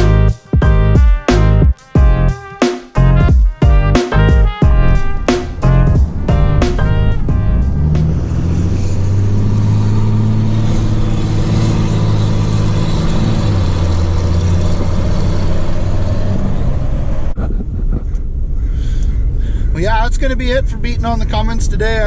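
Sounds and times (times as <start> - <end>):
loud diesel engine revving: 5.6 - 17.3.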